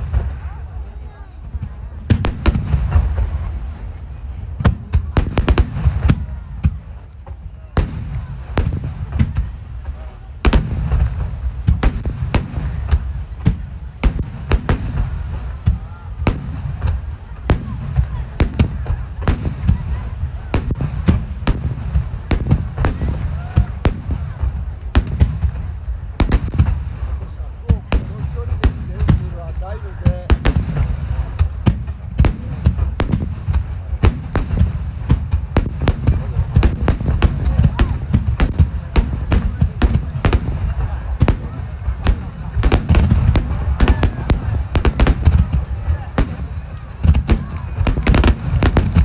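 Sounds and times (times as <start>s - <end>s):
firework shells bursting: 30.3s - 49.0s.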